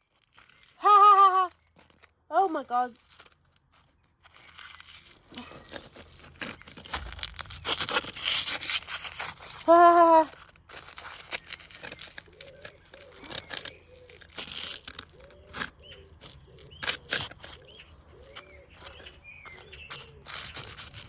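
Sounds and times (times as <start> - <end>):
sharp knocks: 6.8 - 9.3.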